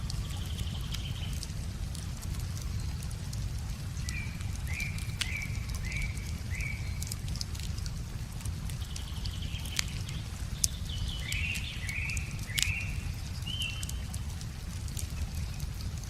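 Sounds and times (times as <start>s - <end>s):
songbird chirping: 0.0s - 1.6s, 4.0s - 7.4s, 8.8s - 14.2s
wood fire crackling and popping: 0.0s - 16.0s.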